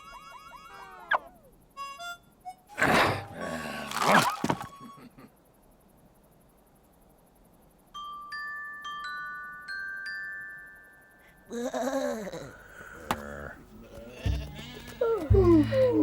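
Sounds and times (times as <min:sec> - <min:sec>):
wavering voice-like call: 0:00.0 - 0:01.4.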